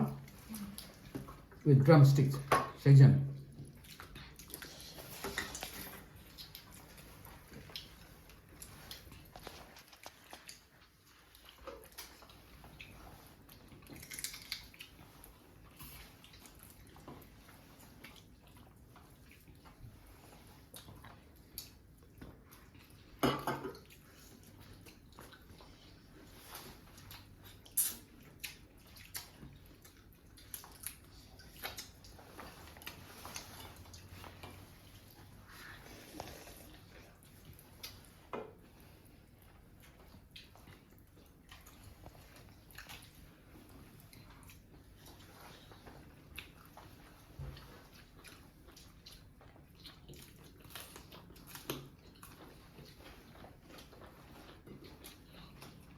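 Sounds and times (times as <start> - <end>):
dishes and cutlery clinking: 23.2 - 23.9.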